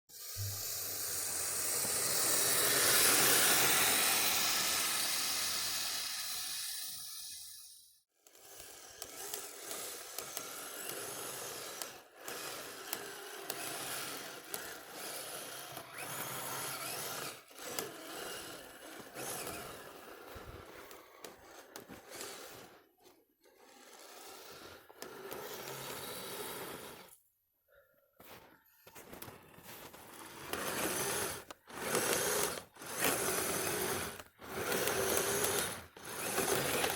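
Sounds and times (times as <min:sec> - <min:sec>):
toy vehicle tracks scraping snow: 0:00.1 - 0:27.3, 0:28.2 - 0:36.9.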